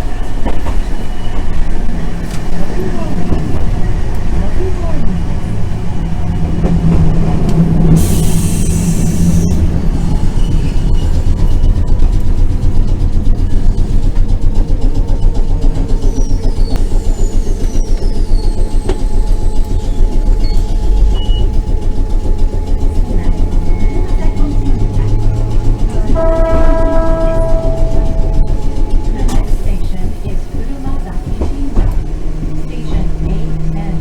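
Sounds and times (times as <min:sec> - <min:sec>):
tram rumbling on rails: 0:00.0 - 0:34.0
hiss: 0:08.0 - 0:09.4.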